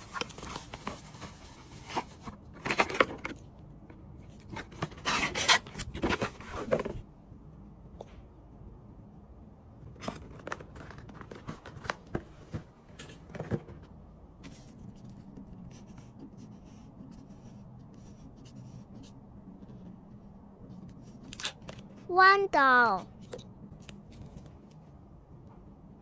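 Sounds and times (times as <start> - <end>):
hands handling packaging: 0.0 - 3.4, 4.4 - 7.0
low steady background noise: 0.0 - 26.0.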